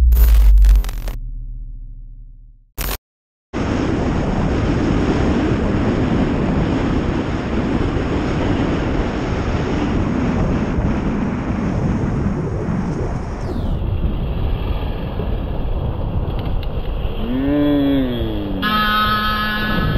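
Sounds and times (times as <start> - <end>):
wind rushing over microphone: 3.6 - 18.6
motorcycle engine and road noise: 4.1 - 19.9.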